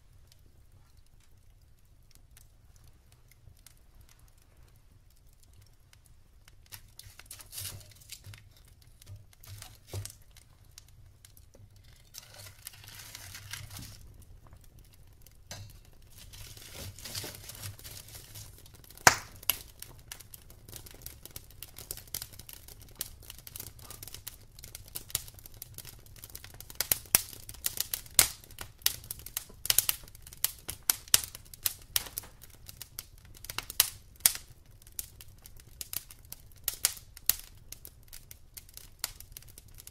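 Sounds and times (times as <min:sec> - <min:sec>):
soft hiss: 0:00.0 - 0:21.8
wood fire crackling: 0:00.0 - 0:39.9.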